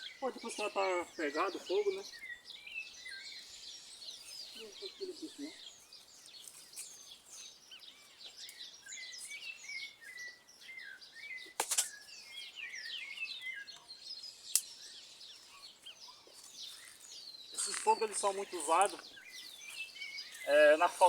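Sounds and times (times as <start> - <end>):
small birds chirping: 0.0 - 21.0
sharp pops: 11.6 - 12.0.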